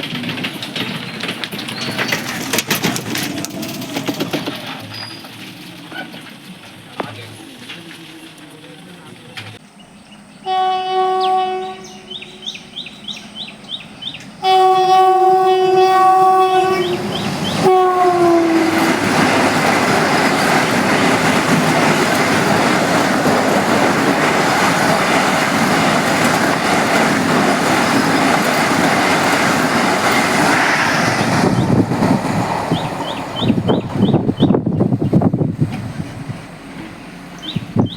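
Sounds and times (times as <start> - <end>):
train wheels rushing on rails: 0.0 - 10.5, 11.5 - 37.9
train horn blasts: 10.4 - 12.6, 14.4 - 19.2.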